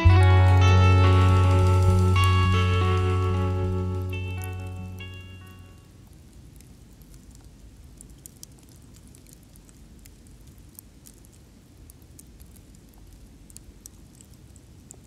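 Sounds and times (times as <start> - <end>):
low steady rumble: 0.0 - 8.2
campfire crackling and popping: 0.0 - 15.0.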